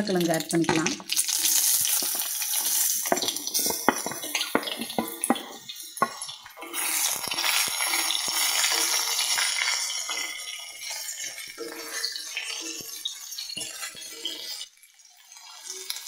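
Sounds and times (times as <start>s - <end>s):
oil sizzling: 0.0s - 16.0s
wooden spatula stirring: 1.5s - 14.7s
potato slices knocking into oil: 1.7s - 10.3s.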